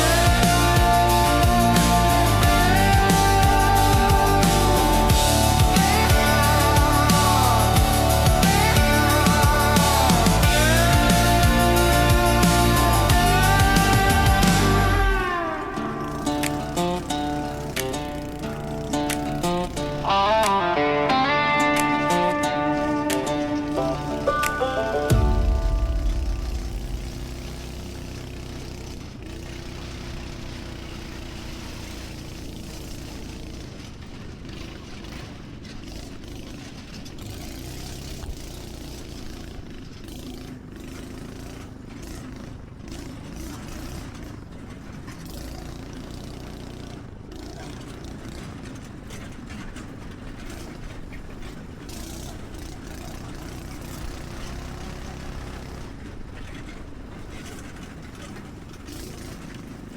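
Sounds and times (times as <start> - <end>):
rushing noise: 0.0 - 29.4
small engine running: 0.0 - 59.9.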